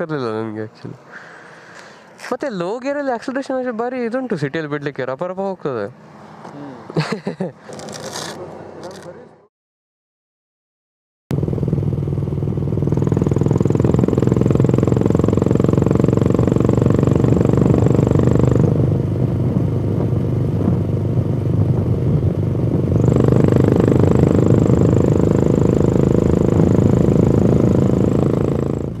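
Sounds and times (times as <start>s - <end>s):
motorcycle engine running: 11.3s - 29.0s.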